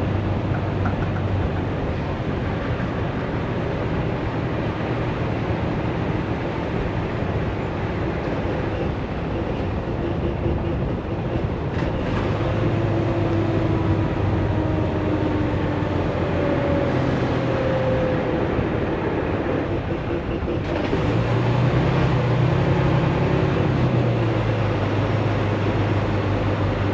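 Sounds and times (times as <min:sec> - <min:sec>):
road noise: 0:00.0 - 0:26.9
truck engine drone: 0:00.0 - 0:26.9.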